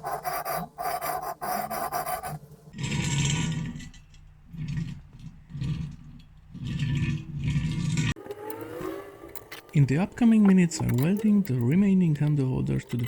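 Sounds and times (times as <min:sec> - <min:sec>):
rasping filing tool on metal: 0:00.0 - 0:08.2
low rumbling scrapes: 0:02.8 - 0:08.2.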